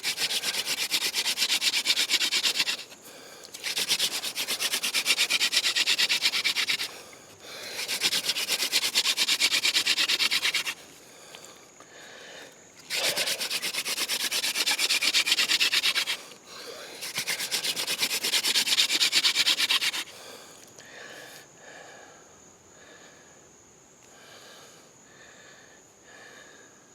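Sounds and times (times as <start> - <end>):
wooden spindle rubbing on board: 0.0 - 3.0, 3.6 - 7.0, 7.8 - 10.8, 12.9 - 16.2, 17.0 - 20.1.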